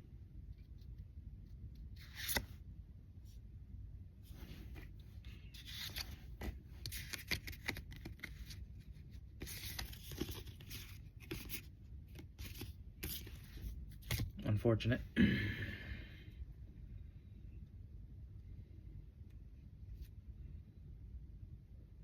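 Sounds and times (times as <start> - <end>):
trading cards sliding and rubbing: 1.8 - 2.6, 4.2 - 14.4.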